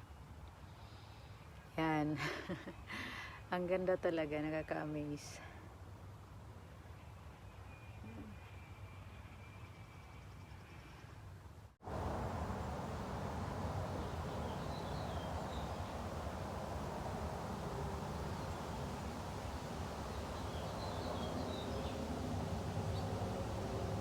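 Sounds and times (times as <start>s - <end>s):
faint bird chirps: 6.8s - 11.2s
low background rumble: 11.8s - 24.0s.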